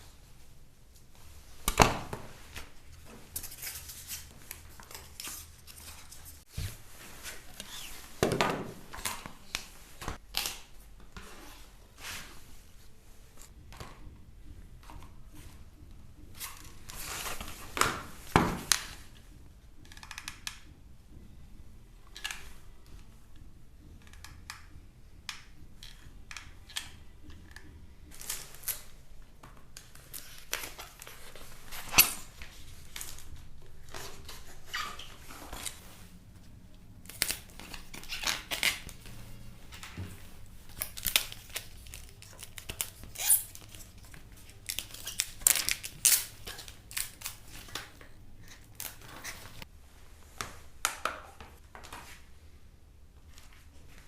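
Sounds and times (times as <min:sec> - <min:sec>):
crinkly materials rustling: 0:27.3 - 0:50.7.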